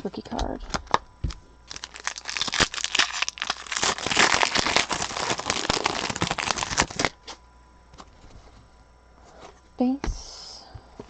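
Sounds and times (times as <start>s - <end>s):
foil wrapper tearing and crinkling: 0.7s - 1.0s, 1.7s - 7.2s.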